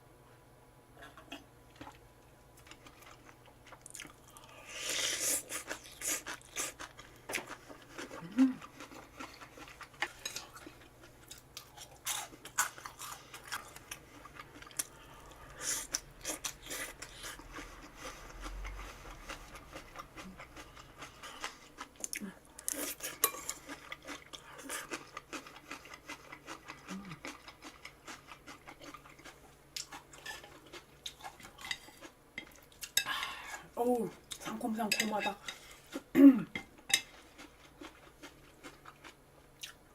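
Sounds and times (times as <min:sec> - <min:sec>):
chewing and crunching food: 0:01.0 - 0:39.9.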